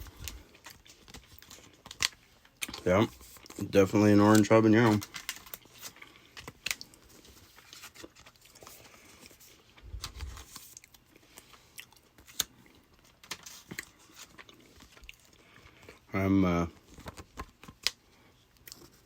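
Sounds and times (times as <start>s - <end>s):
person chewing: 10.7s - 13.1s, 13.7s - 16.0s.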